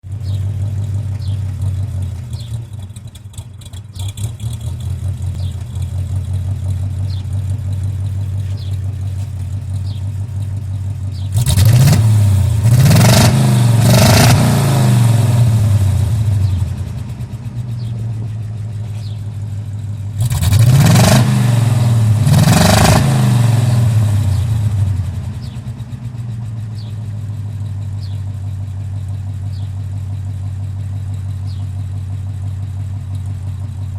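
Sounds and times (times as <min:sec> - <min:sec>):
car engine idling and revving: 0:00.0 - 0:33.9.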